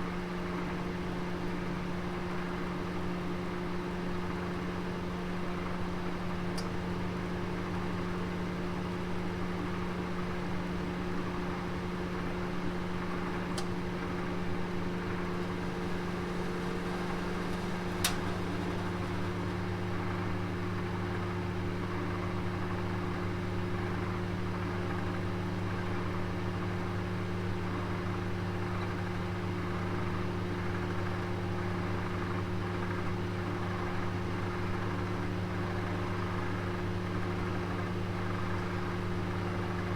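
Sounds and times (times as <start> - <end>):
oven humming: 2.8 - 32.7
faint click: 16.6 - 19.2.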